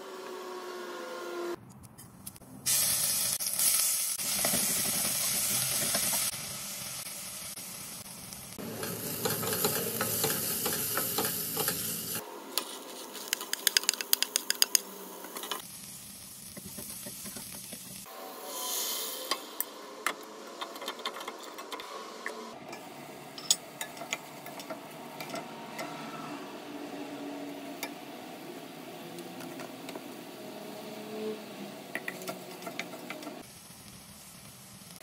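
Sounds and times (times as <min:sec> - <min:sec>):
vegetables sizzling in hot oil: 0:02.7 - 0:13.6, 0:15.3 - 0:18.8, 0:26.6 - 0:35.0
sharp clicks and taps: 0:13.3 - 0:14.9.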